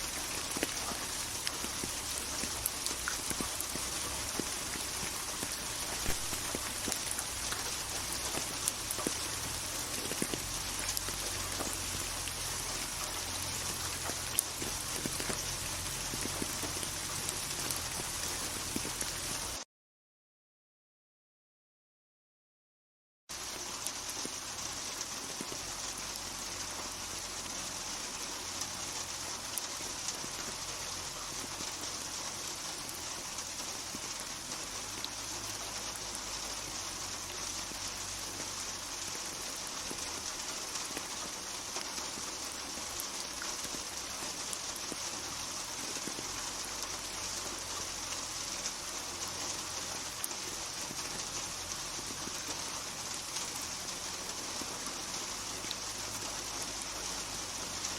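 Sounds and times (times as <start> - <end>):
rain hissing: 0.0 - 19.6, 23.3 - 57.9.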